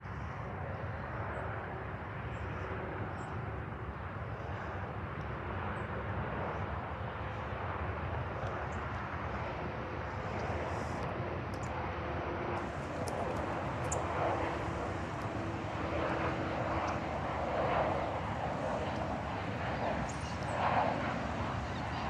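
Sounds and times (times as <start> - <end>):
jet engine roar: 6.5 - 22.0
faint steady tones: 9.7 - 22.0.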